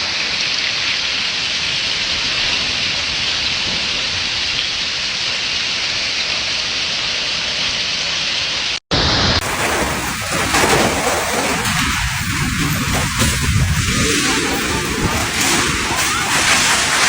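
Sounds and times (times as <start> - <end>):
heavy rain: 0.0 - 17.0
loud noise: 8.9 - 17.0.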